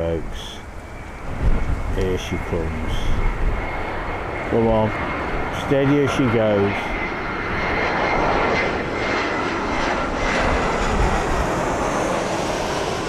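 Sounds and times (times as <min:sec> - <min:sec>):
airliner engines rushing and whining: 0:00.0 - 0:13.0
wind buffeting microphone: 0:00.0 - 0:13.0.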